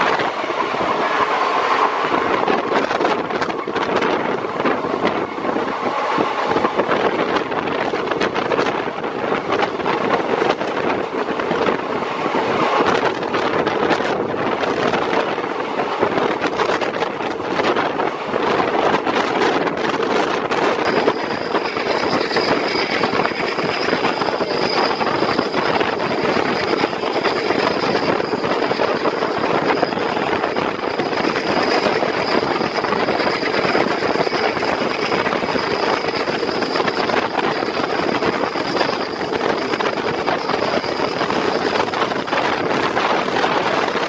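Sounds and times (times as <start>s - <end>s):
train wheels on rail: 0.0s - 44.0s
thin high whine: 20.8s - 43.0s.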